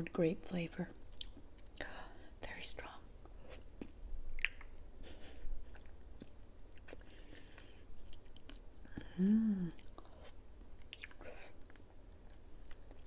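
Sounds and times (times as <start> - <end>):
wet chewing squishes: 3.7 - 4.8, 9.8 - 13.0
person humming: 9.0 - 9.8.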